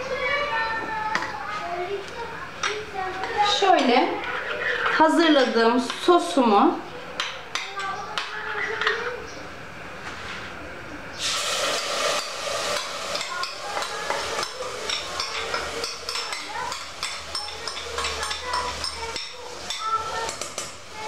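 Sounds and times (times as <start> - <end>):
utensils clinking against pots: 11.2 - 20.8.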